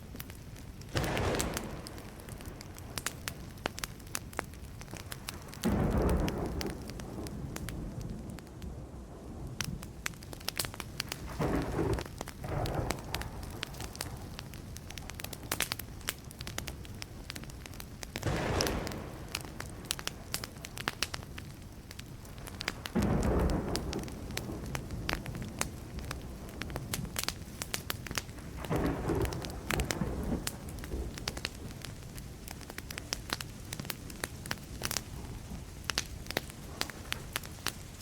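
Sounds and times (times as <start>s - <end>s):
campfire crackling and popping: 0.0s - 38.0s
distant thunder rumbling: 0.9s - 3.9s, 5.0s - 15.4s, 18.2s - 21.6s, 22.2s - 27.2s, 28.5s - 32.1s.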